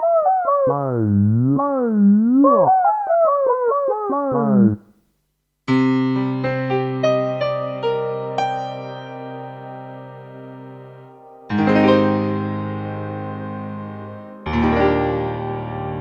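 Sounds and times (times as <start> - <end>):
synthesizer chord: 0.0 - 4.8
synthesizer lead melody with vibrato: 0.0 - 4.8.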